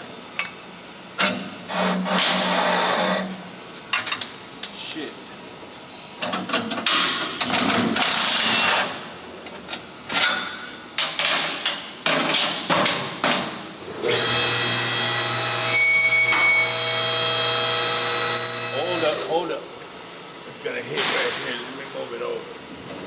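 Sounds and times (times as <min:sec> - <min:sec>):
power tool motor whining: 0:14.1 - 0:19.2.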